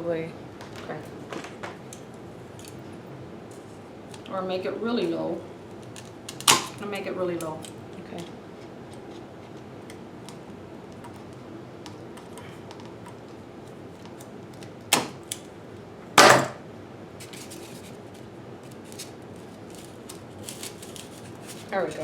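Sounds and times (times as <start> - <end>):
loud short crack: 16.2 - 16.6.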